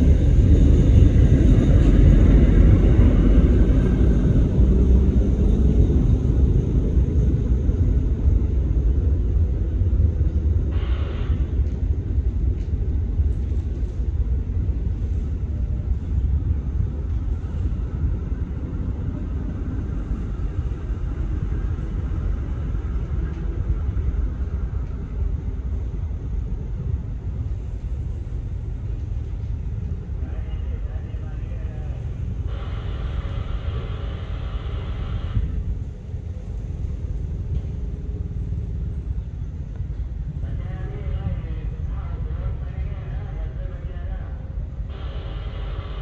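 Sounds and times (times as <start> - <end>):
diesel locomotive rumbling: 0.0 - 46.0.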